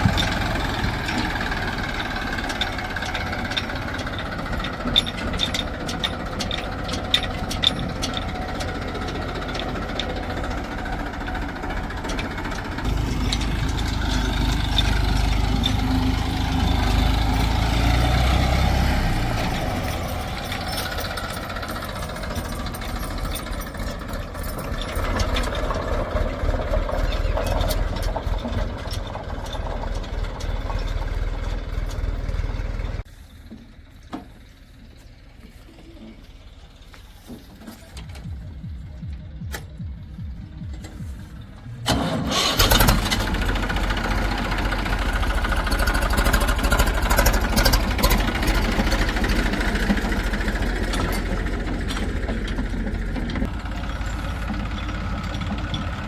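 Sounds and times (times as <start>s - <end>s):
heavy machinery diesel engine: 0.0s - 56.0s.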